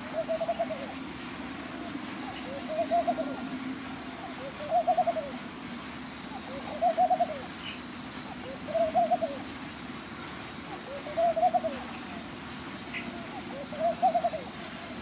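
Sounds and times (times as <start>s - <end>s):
bird rippling coo: 0.0s - 1.0s, 2.2s - 3.6s, 4.2s - 5.4s, 6.4s - 7.5s, 8.4s - 9.5s, 10.8s - 12.0s, 13.0s - 15.0s
steady high hiss: 0.0s - 15.0s.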